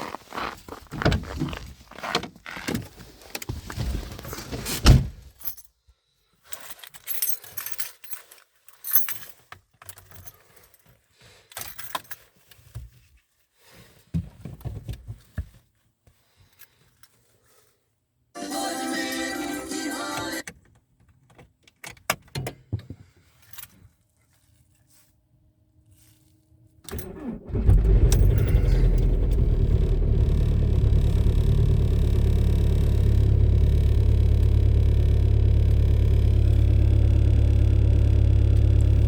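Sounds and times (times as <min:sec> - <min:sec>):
keys jangling: 0:06.6 - 0:10.8.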